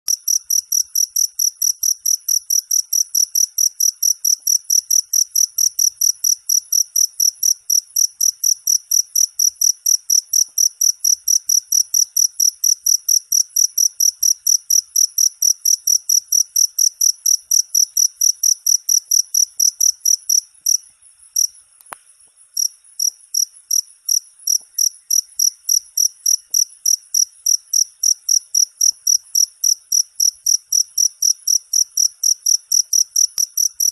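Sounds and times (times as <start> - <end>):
cricket chirping: 0.1 - 33.9
single click: 21.8 - 22.1.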